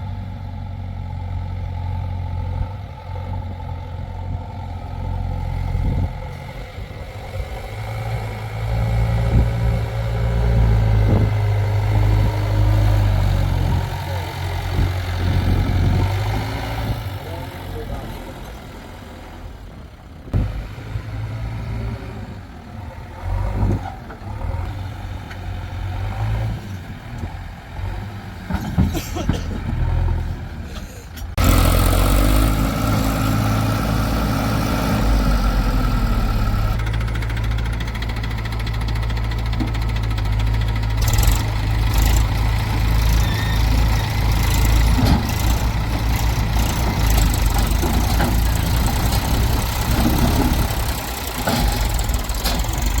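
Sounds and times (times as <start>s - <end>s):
heavy diesel machinery engines: 0.0s - 53.0s.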